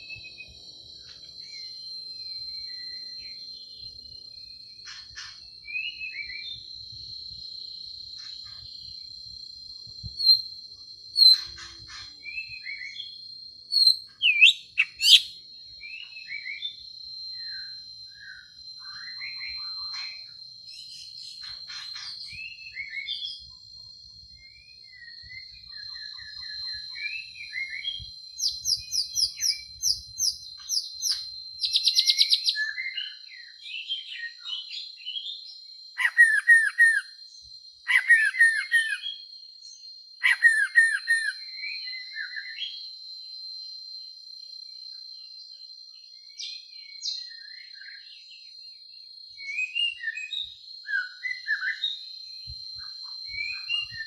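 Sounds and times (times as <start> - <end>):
songbird singing trills: 0.0 - 43.3, 44.9 - 54.0.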